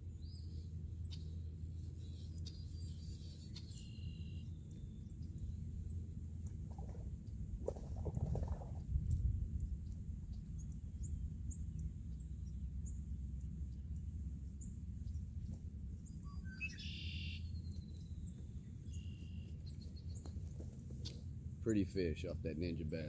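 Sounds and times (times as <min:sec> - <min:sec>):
small birds chirping: 0:00.1 - 0:06.0, 0:09.6 - 0:21.3
steady low rumble: 0:04.0 - 0:23.0.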